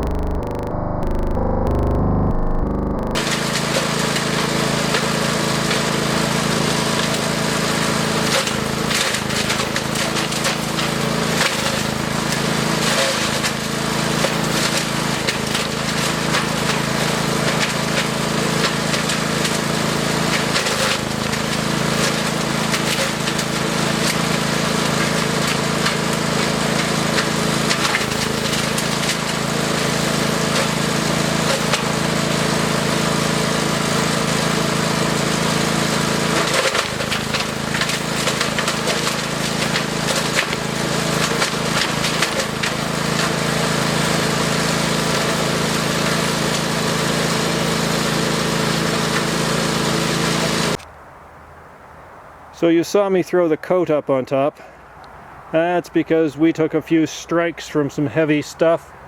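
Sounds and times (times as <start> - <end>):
wood chipper engine running: 0.0 - 50.8
wood cracking and snapping: 20.3 - 24.3, 26.8 - 29.3, 36.4 - 43.4.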